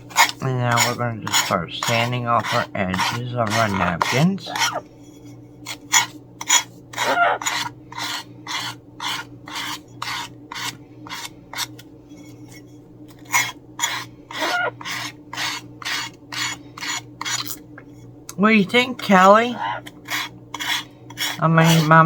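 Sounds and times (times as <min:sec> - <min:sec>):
sanding block rasping: 0:00.1 - 0:04.8, 0:06.5 - 0:11.7, 0:13.4 - 0:17.4, 0:20.0 - 0:22.0.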